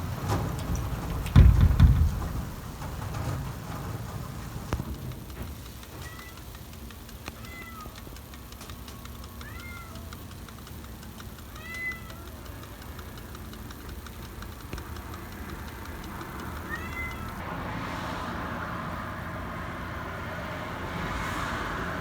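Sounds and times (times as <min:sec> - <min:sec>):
cat meowing: 0:07.4 - 0:08.0, 0:09.4 - 0:10.1, 0:11.5 - 0:12.5, 0:16.6 - 0:17.4.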